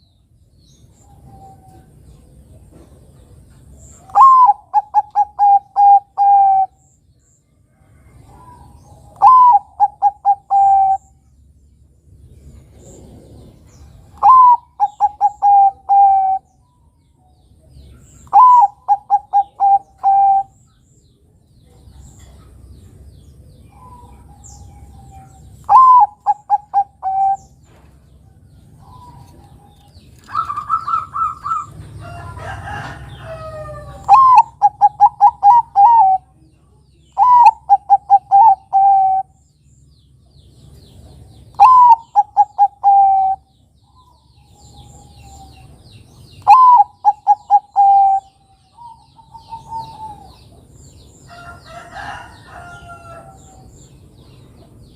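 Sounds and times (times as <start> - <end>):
jumbled bird call: 0.0 - 7.1, 8.0 - 11.3, 12.6 - 21.0, 21.7 - 39.9, 40.6 - 54.9
faint bird calls: 0.9 - 7.0, 7.9 - 11.3, 12.6 - 17.0, 17.7 - 20.8, 23.6 - 31.8, 32.6 - 39.4, 41.5 - 50.6
dove cooing: 4.0 - 6.8, 8.3 - 11.2, 12.8 - 16.5, 18.2 - 20.6, 23.7 - 27.6, 28.7 - 31.8, 32.4 - 36.4, 37.2 - 39.4, 41.5 - 45.8, 46.4 - 50.6.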